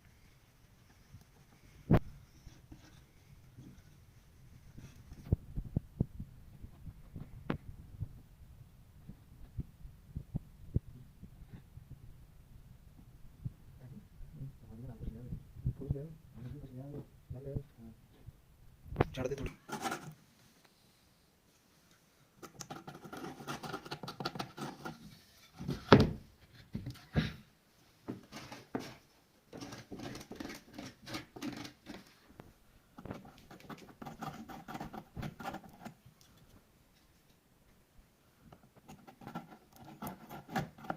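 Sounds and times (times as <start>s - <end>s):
scratching on wooden bat: 19.5s - 20.2s, 22.4s - 25.9s, 28.2s - 32.4s, 33.0s - 36.0s, 38.6s - 40.9s.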